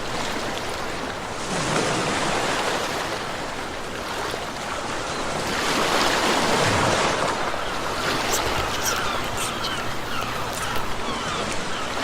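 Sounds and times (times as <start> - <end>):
ocean waves breaking: 0.0 - 12.0.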